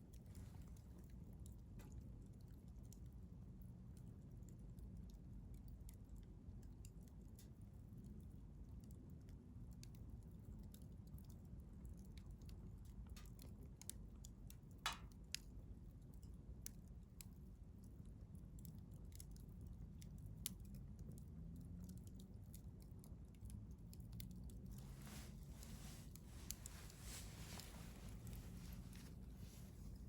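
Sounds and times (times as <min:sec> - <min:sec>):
wood fire crackling: 0:00.0 - 0:30.0
fire popping: 0:14.5 - 0:15.4, 0:24.2 - 0:30.0.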